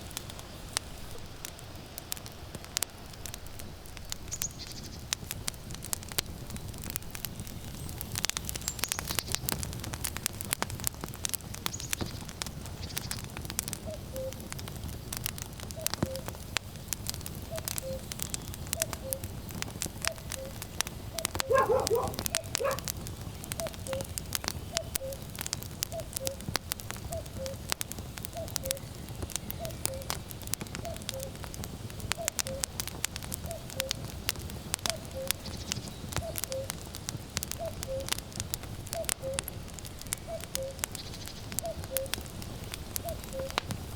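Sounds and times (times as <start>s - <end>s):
wood fire crackling and popping: 0.0s - 43.9s
cuckoo calling: 13.9s - 14.4s, 17.5s - 18.1s, 18.8s - 19.3s, 20.0s - 20.6s, 21.2s - 22.9s, 23.5s - 25.3s, 29.6s - 30.2s, 30.8s - 31.4s, 32.2s - 32.7s, 34.9s - 35.6s, 36.2s - 36.8s, 37.6s - 38.2s, 39.0s - 39.5s, 41.6s - 42.2s, 43.0s - 43.6s
dog barking: 21.4s - 22.9s.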